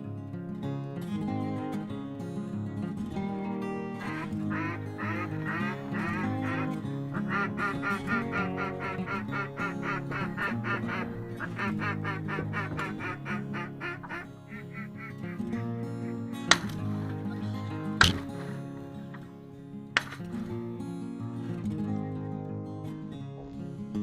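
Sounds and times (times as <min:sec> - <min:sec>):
background music with low notes: 0:00.0 - 0:24.0
duck quacking: 0:04.0 - 0:16.9.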